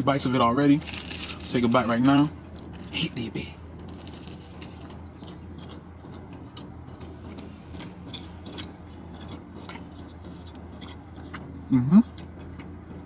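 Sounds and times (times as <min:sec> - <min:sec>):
low hum: 0:00.0 - 0:13.0
person chewing: 0:03.8 - 0:13.0.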